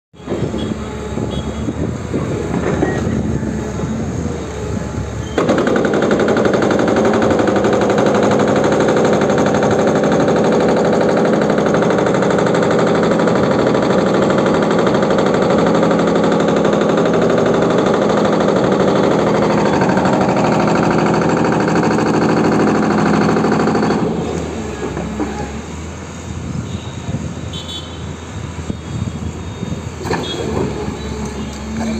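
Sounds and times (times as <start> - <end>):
excavator knocking and crunching: 1.8 - 3.4, 5.2 - 25.8
rapid hammering: 5.4 - 24.2.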